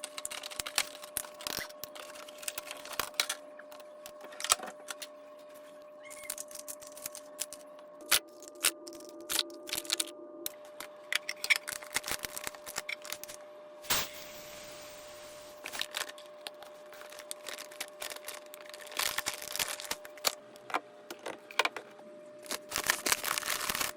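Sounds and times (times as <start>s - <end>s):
packaging rustling: 0.0s - 3.4s, 6.1s - 13.4s, 15.5s - 20.4s, 22.4s - 23.9s.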